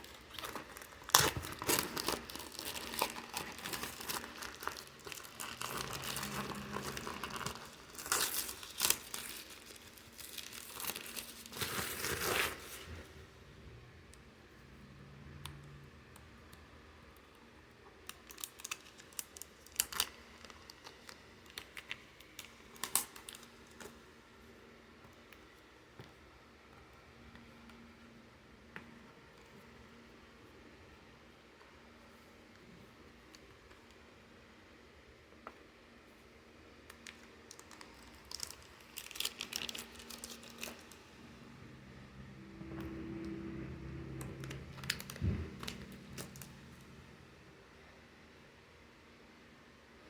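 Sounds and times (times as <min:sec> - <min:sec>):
plastic packaging clicks and crinkles: 0:00.0 - 0:13.0, 0:17.8 - 0:24.0, 0:36.8 - 0:41.2, 0:44.1 - 0:46.9.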